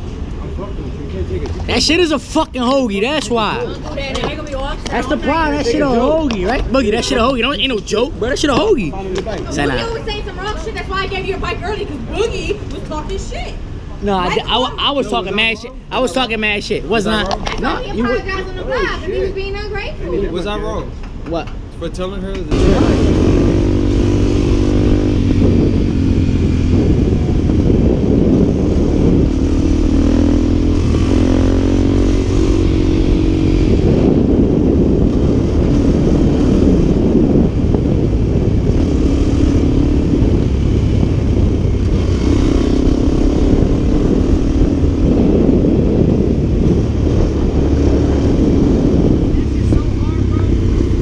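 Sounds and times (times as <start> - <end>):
dirt bike engine running: 22.5 - 51.0.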